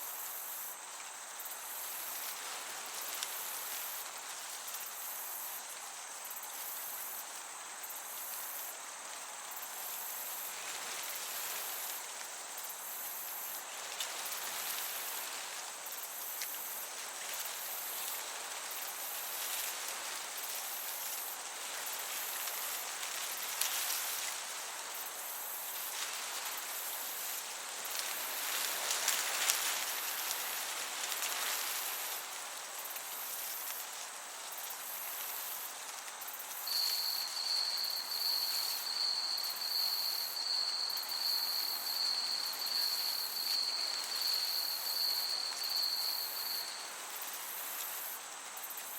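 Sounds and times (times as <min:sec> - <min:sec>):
breeze through grass: 0:00.0 - 0:48.9
crickets chirping: 0:00.0 - 0:48.9.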